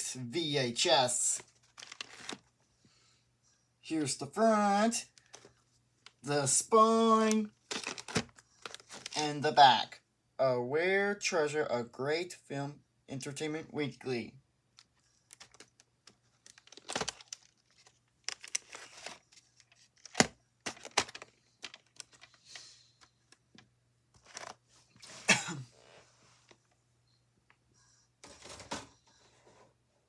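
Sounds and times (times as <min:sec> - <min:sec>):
videotape case clicks and knocks: 0:20.0 - 0:21.8.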